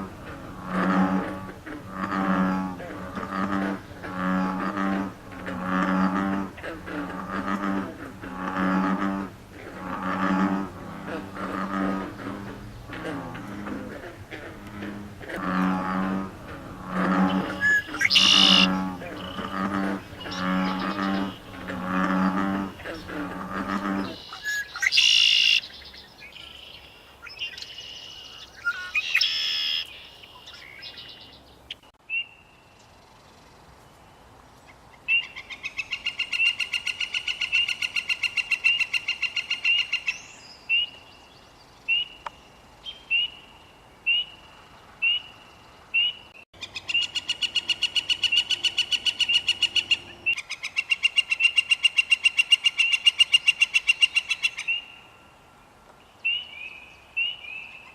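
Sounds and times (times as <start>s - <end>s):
woodpecker calling: 0.0s - 31.4s, 46.0s - 54.9s.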